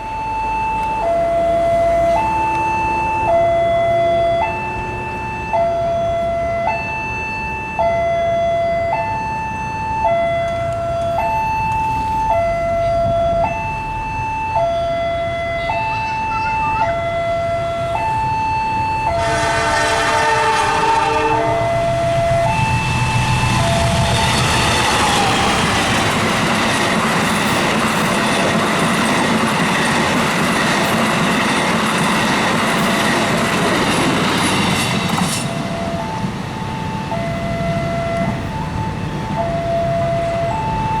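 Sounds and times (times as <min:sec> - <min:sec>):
level crossing two-tone alarm: 0:00.0 - 0:41.0
train horn blowing: 0:19.1 - 0:22.4.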